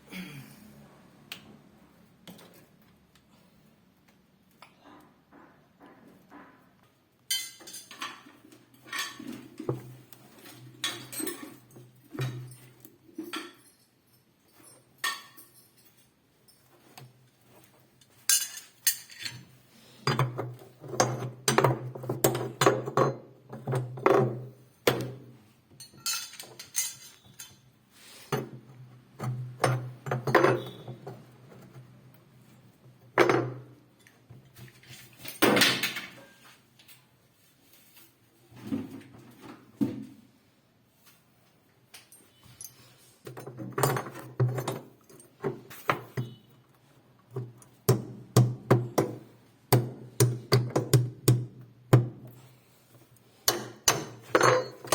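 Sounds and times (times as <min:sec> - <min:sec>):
metallic knocks and clinks of tools: 0:07.3 - 0:09.7, 0:10.8 - 0:17.2, 0:18.0 - 0:19.5, 0:25.8 - 0:27.7, 0:29.2 - 0:31.7, 0:42.0 - 0:46.5, 0:53.4 - 0:54.9.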